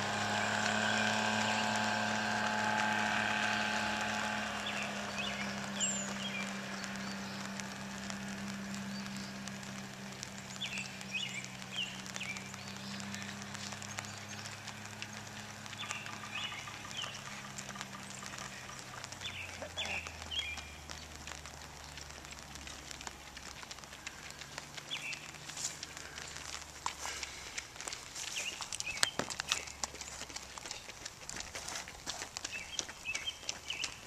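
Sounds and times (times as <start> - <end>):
low engine hum: 0.0 - 34.0
songbird chirping: 0.0 - 34.0
footsteps on pavement: 0.1 - 34.0.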